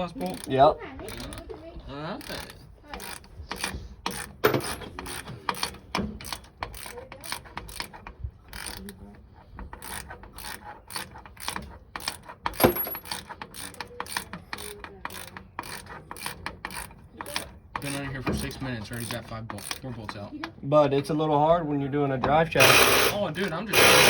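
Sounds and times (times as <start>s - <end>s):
ratchet wrench clicking: 0.0s - 1.6s, 2.2s - 20.2s, 22.5s - 24.0s
metal clank: 4.1s - 5.2s, 12.5s - 13.2s.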